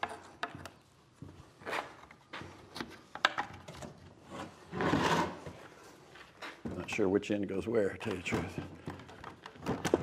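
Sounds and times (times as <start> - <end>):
wood scraping on wood: 4.2 - 5.8.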